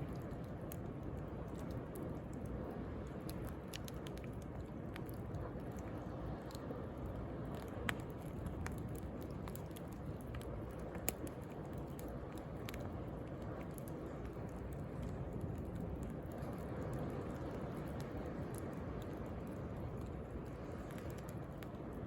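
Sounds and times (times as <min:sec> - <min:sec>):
bonfire crackling and popping: 0:00.0 - 0:22.0.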